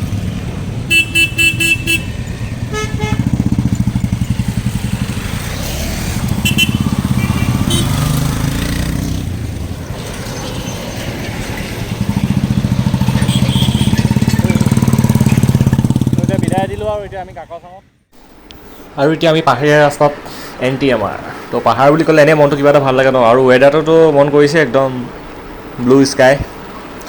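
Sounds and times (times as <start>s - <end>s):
motorcycle engine running: 0.0s - 17.4s
short horn beeps: 6.4s - 8.0s, 13.1s - 14.6s.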